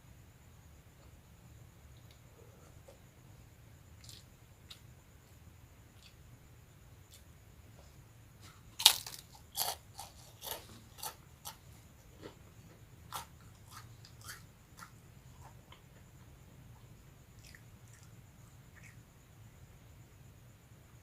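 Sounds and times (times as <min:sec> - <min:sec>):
crunchy chewing: 0:04.0 - 0:06.2, 0:07.0 - 0:19.3
biting crispy cracker: 0:08.8 - 0:11.6.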